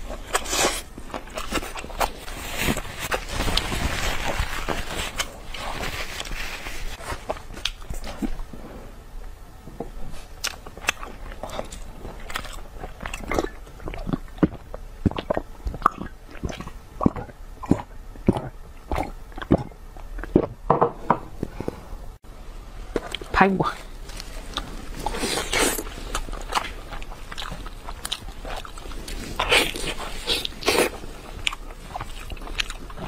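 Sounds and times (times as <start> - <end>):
chewing and biting crunches: 0.0 - 6.4, 10.2 - 20.6, 24.0 - 33.0
tissue rustling: 2.2 - 7.3.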